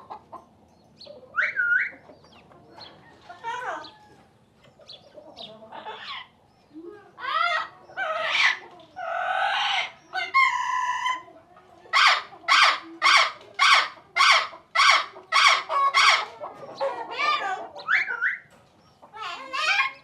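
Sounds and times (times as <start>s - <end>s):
bird calling: 0.0s - 2.8s, 12.0s - 20.0s.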